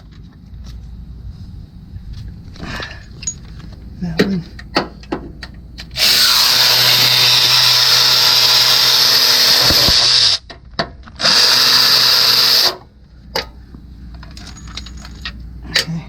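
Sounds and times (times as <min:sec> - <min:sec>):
power drill spinning out bolt: 0:05.9 - 0:10.4, 0:11.2 - 0:12.8.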